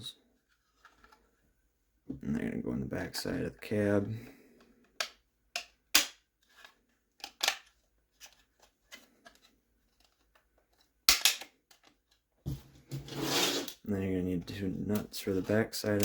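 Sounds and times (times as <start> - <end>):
plastic parts clicking: 4.8 - 12.2.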